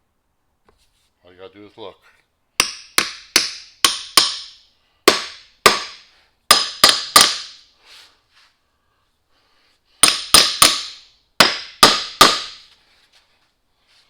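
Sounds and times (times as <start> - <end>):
hammer striking metal: 2.6 - 7.6, 10.0 - 12.6.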